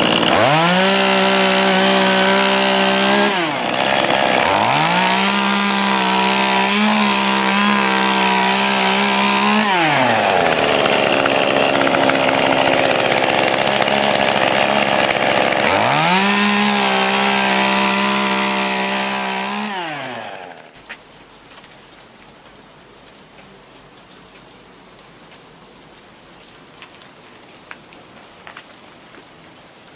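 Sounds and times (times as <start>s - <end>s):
chainsaw cutting wood: 0.0s - 20.8s
chainsaw engine revving: 0.0s - 20.8s.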